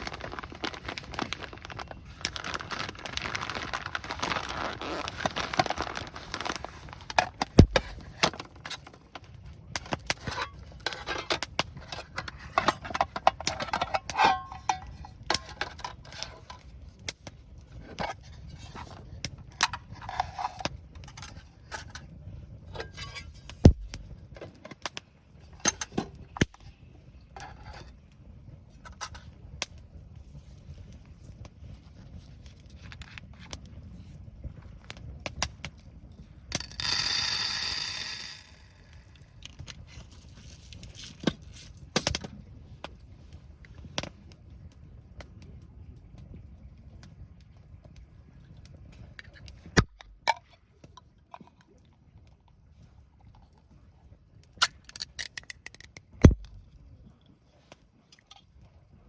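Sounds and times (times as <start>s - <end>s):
rustling: 0.0s - 8.0s
cookware and utensils clinking: 12.2s - 15.8s.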